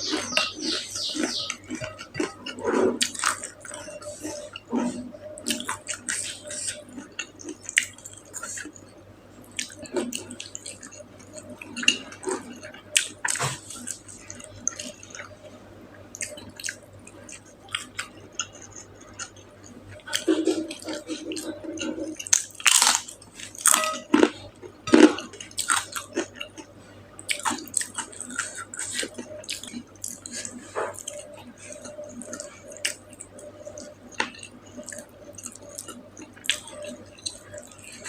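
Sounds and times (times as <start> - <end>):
food crunch: 16.2 - 26.7.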